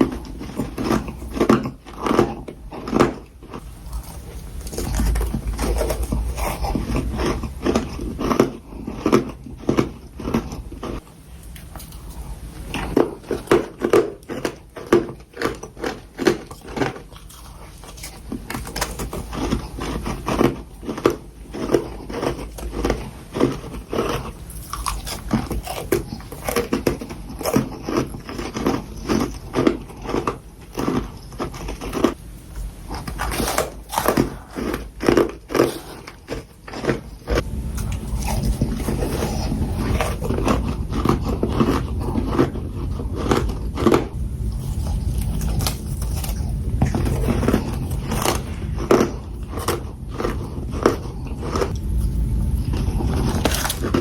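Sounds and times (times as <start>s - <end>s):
crunching and chewing frost: 0.0s - 54.0s.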